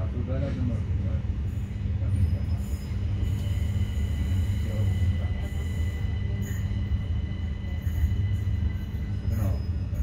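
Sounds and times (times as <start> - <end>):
train low rumble: 0.0 - 10.0
thin high whines: 2.0 - 10.0.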